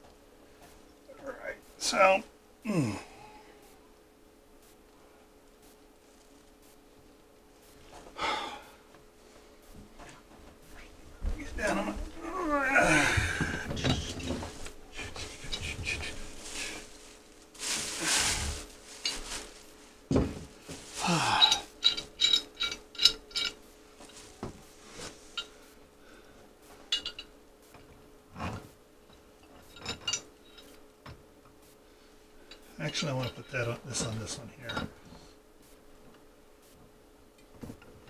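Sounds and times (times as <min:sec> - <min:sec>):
faint steady hum: 0:00.0 - 0:38.0
metal tools clinking and scraping: 0:13.7 - 0:19.6, 0:20.8 - 0:24.4, 0:26.9 - 0:27.3, 0:29.4 - 0:30.8, 0:32.5 - 0:35.0.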